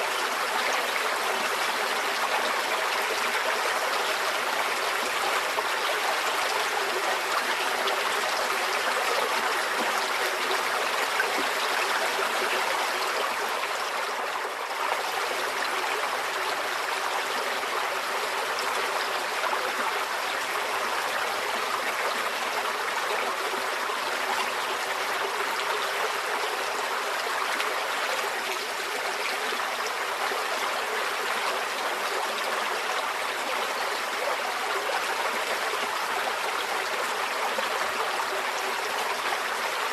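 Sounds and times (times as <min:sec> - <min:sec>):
stream water rushing and trickling: 0:00.0 - 0:39.9.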